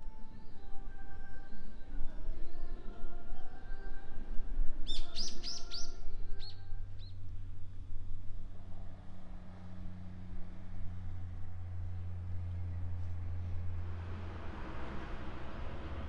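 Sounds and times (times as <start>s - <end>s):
small bird chirping: 4.9s - 7.1s
steady low hum: 5.9s - 16.0s.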